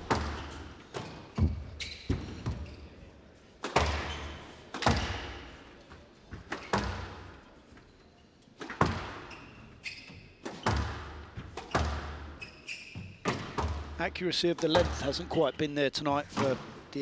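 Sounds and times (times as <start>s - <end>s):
shoe squeaks: 0.0s - 3.1s, 3.7s - 5.2s, 7.6s - 13.7s, 14.6s - 15.7s
squash ball hitting racket and wall: 0.0s - 7.6s, 8.5s - 14.0s, 14.6s - 15.4s, 16.3s - 17.0s.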